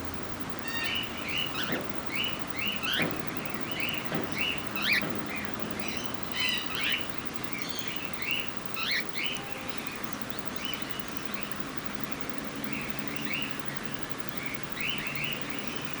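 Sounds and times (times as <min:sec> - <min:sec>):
cockatiels chirping: 0:00.6 - 0:11.6.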